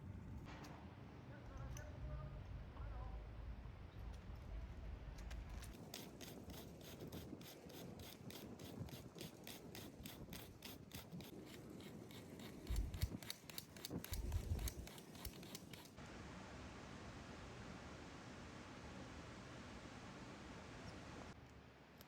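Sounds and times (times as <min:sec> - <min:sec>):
rasping strokes: 0:05.6 - 0:16.0.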